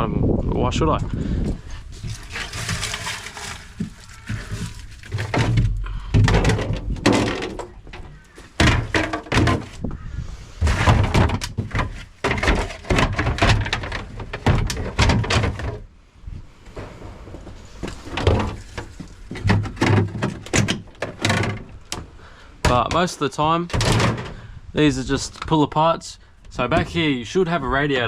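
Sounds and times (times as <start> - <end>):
plastic parts thudding and cracking: 1.9 - 10.0, 10.6 - 15.9, 16.8 - 24.5.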